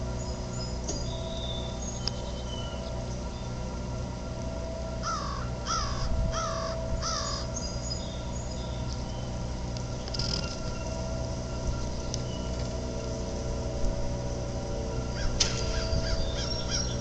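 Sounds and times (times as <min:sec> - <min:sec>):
pumping station hum: 0:00.0 - 0:17.0
bird calling: 0:05.0 - 0:13.6, 0:14.2 - 0:17.0.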